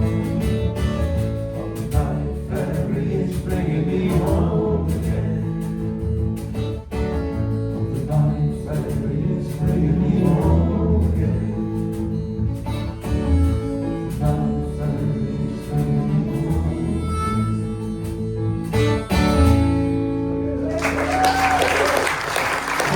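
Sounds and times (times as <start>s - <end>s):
acoustic guitar music: 0.0s - 20.7s
audience applause: 20.6s - 22.9s.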